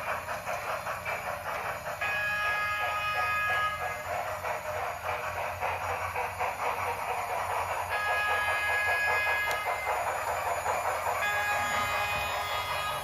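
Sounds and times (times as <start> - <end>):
steam locomotive chuffing and hiss: 0.0 - 13.0
multi-tone train whistle: 1.9 - 4.5, 7.8 - 13.0.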